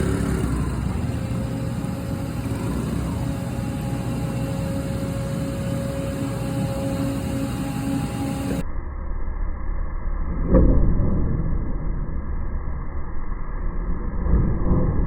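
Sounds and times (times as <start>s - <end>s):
diesel excavator engine running: 0.0s - 8.6s
faint steady whine: 0.0s - 10.3s.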